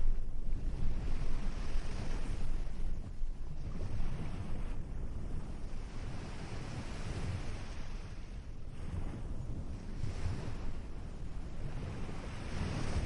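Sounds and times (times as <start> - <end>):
steady low rumble: 0.0 - 3.8
waves washing on beach: 0.0 - 13.0.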